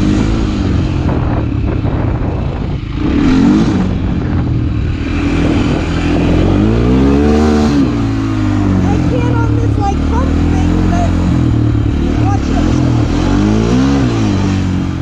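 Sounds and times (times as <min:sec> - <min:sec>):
motorcycle engine revving: 0:00.0 - 0:15.0
wind noise: 0:00.0 - 0:15.0.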